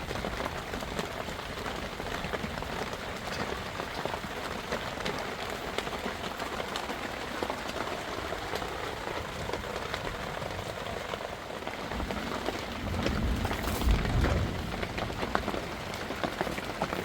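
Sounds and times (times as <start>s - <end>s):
heavy rain falling: 0.0s - 17.0s
sharp raindrop hits: 11.9s - 17.0s
low rumble: 12.0s - 15.7s.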